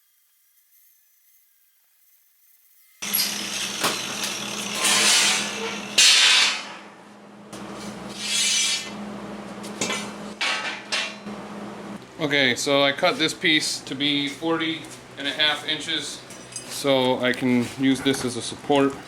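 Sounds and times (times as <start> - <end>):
power tool cutting steel: 0.0 - 6.9, 8.1 - 9.0.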